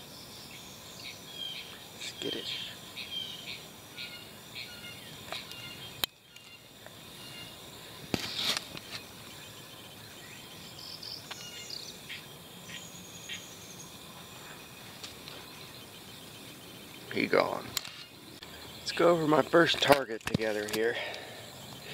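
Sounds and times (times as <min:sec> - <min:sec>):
insect and bird chirps: 0:00.0 - 0:21.9.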